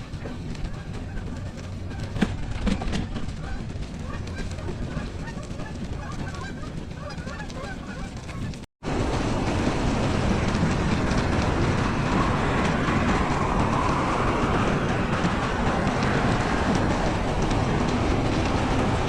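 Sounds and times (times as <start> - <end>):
flock of birds calling: 0.0 - 8.6
loud steady rushing noise: 0.0 - 19.0
geese honking: 0.2 - 8.6.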